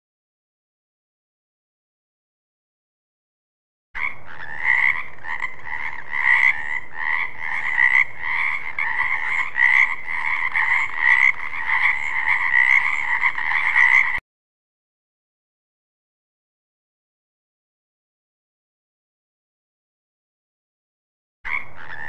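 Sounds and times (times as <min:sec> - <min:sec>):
frogs croaking: 0:04.0 - 0:14.2, 0:21.5 - 0:22.0.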